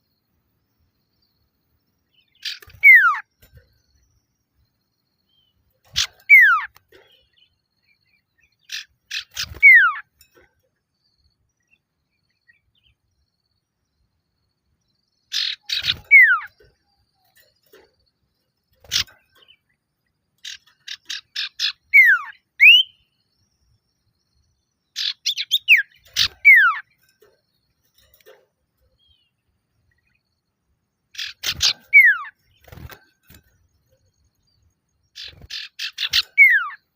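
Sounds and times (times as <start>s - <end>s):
bird rattling and whistling call: 2.3s - 4.0s, 5.8s - 7.2s, 8.6s - 10.5s, 15.3s - 18.0s, 18.7s - 19.6s, 20.4s - 23.1s, 25.0s - 29.2s, 31.2s - 34.1s, 35.2s - 36.9s.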